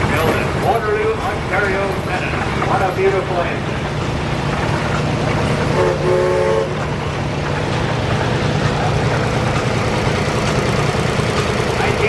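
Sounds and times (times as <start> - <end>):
antique engine running: 0.0 - 12.0.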